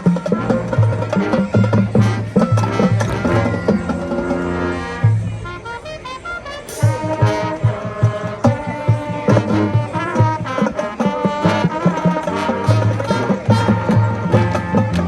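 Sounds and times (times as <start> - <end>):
marching band brass chords: 0.0 - 15.0
low drum beat: 1.6 - 5.6, 6.7 - 9.4
cymbal crash: 6.7 - 8.1.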